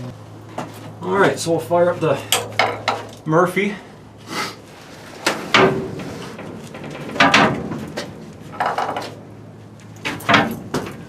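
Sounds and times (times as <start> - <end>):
sharp clunks and knocks: 5.2 - 9.2, 10.0 - 11.0.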